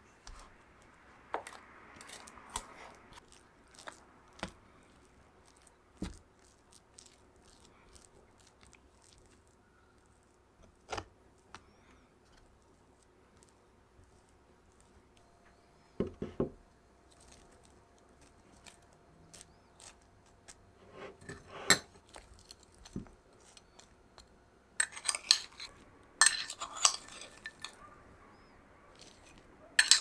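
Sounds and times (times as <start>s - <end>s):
utensils and dishware clinking: 20.9s - 22.0s, 24.8s - 27.9s, 29.0s - 30.0s.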